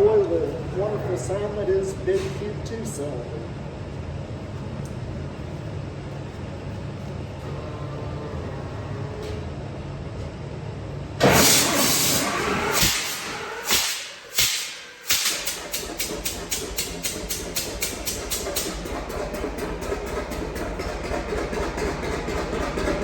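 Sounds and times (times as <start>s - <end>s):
tractor engine starting and idling: 11.2s - 23.0s.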